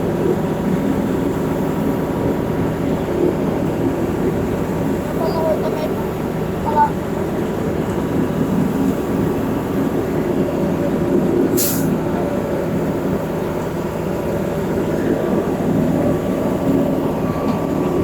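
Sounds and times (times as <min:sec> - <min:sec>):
diesel truck engine running: 0:00.0 - 0:18.0
hiss of released air: 0:11.5 - 0:12.0.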